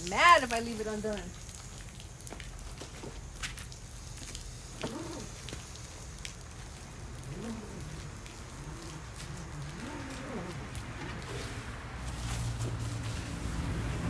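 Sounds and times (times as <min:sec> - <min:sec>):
hose water spattering on plants: 0:00.0 - 0:14.0
dove cooing: 0:04.8 - 0:05.4, 0:07.0 - 0:11.5.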